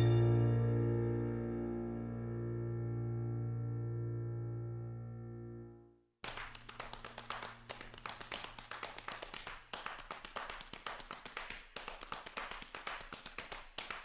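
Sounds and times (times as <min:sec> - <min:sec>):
hand percussion claps and taps: 0:06.2 - 0:14.0.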